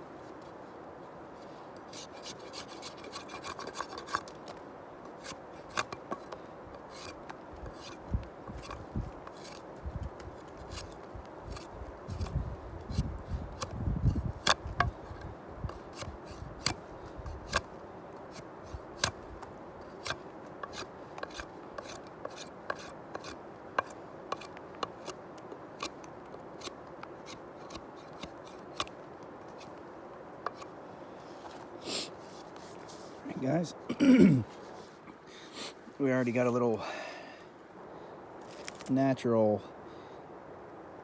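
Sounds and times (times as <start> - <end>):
blade cutting wooden stick: 2.0 - 4.5, 5.1 - 17.7, 18.3 - 25.2, 25.8 - 29.8, 30.4 - 30.7.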